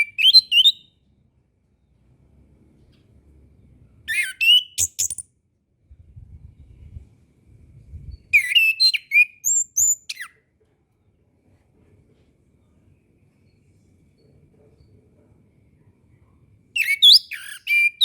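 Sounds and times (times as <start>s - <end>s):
bird whistling song: 0.0s - 1.0s, 4.1s - 5.2s, 8.1s - 10.4s, 16.8s - 18.0s
faint low rumble: 1.0s - 4.1s, 5.8s - 8.3s.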